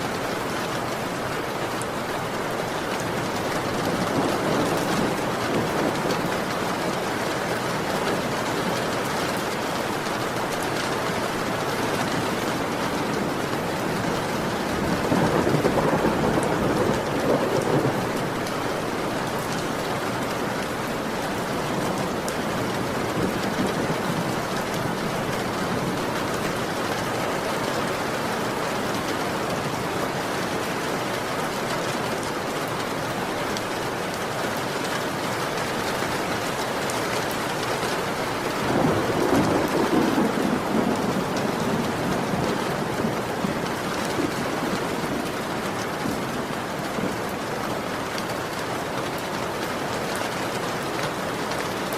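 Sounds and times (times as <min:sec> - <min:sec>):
heavy rain falling: 0:00.0 - 0:51.9
low rolls of thunder: 0:02.8 - 0:10.2, 0:11.3 - 0:26.6, 0:38.1 - 0:47.4.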